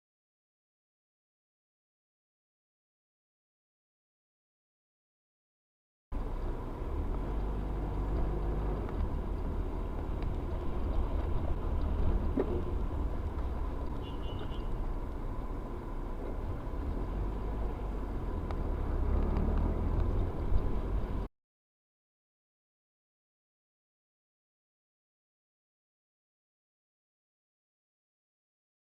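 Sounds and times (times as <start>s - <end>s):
vehicle road and engine rumble: 6.1s - 21.3s.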